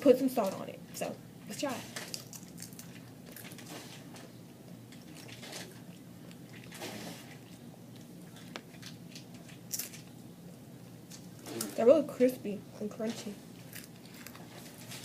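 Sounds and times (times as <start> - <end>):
people crunching chips: 1.8 - 4.3, 4.9 - 10.2, 11.1 - 11.8, 13.5 - 15.0.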